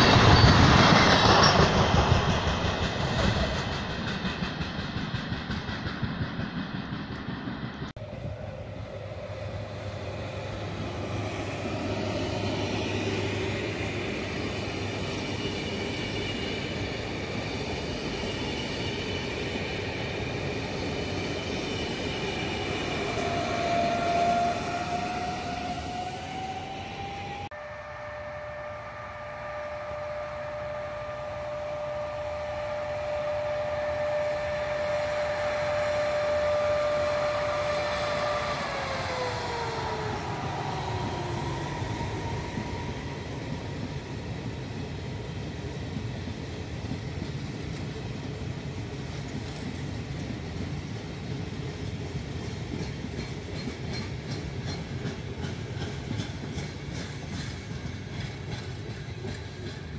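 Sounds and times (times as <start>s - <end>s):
wheels clickety-clack on rail joints: 0.0s - 7.9s, 42.0s - 59.9s
electric train whine: 0.0s - 59.9s
train coaches rumbling: 0.0s - 59.9s.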